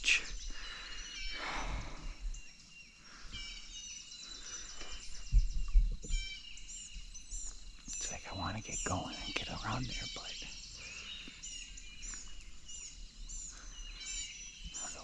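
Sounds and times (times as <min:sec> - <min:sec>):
songbirds chirping and trilling: 0:00.0 - 0:15.0
low thumps: 0:04.9 - 0:06.2.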